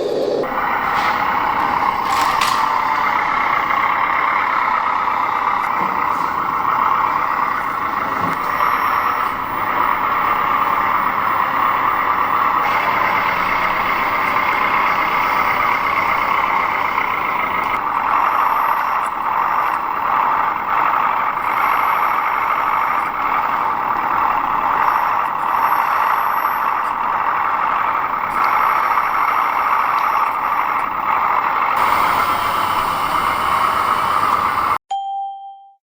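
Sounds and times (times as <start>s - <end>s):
whir of small electric motors: 7.7s - 34.8s.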